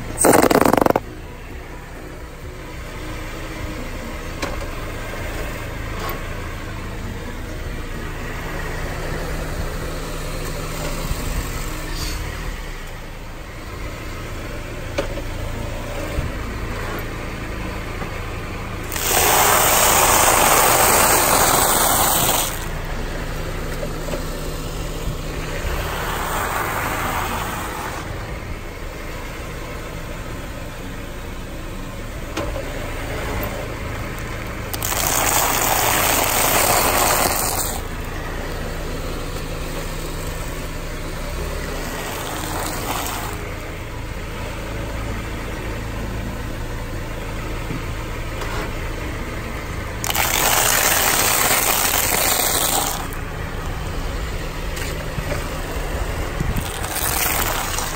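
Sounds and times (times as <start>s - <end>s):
car engine idling: 0.0s - 57.9s
tyre crunching chips: 0.2s - 1.0s, 18.8s - 22.7s, 34.7s - 37.8s, 41.9s - 43.4s, 50.0s - 53.2s, 56.6s - 57.9s.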